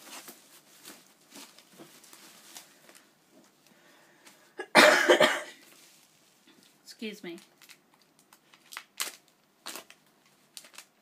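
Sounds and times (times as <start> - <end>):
woman coughing: 4.6 - 5.6.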